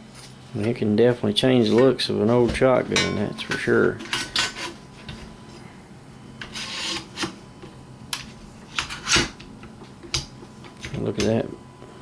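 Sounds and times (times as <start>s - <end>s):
metal scraping rub: 3.4s - 5.0s, 6.4s - 7.3s.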